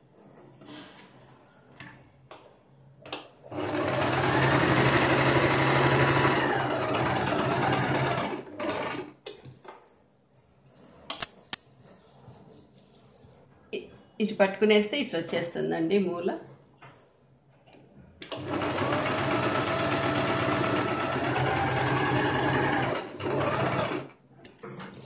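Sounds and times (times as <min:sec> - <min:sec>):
sewing machine running: 0:03.5 - 0:09.1, 0:18.3 - 0:24.1.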